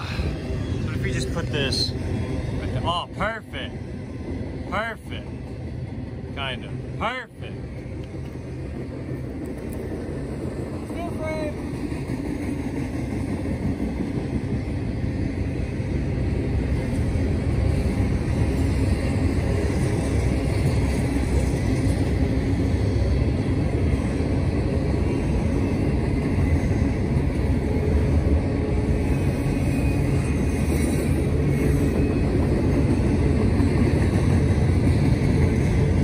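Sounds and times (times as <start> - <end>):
container train rumbling past: 0.0 - 36.0.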